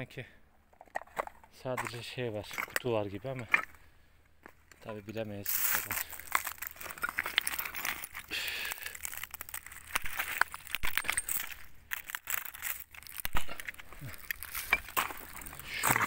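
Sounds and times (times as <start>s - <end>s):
rustling and crunching of dry debris: 0.8s - 16.0s.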